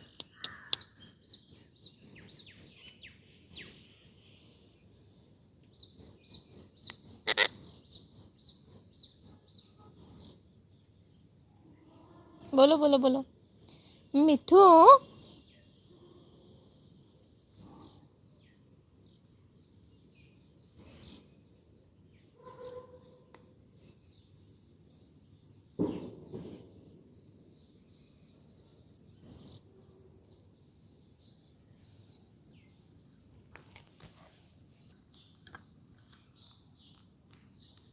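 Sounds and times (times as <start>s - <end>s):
parrot chirping: 7.2s - 7.6s
parrot lower call: 7.2s - 7.7s.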